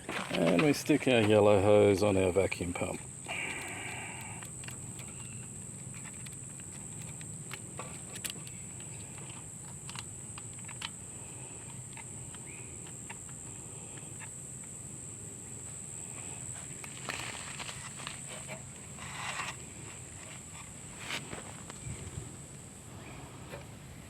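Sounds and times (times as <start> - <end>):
high-pitched insect drone: 0.0 - 23.5.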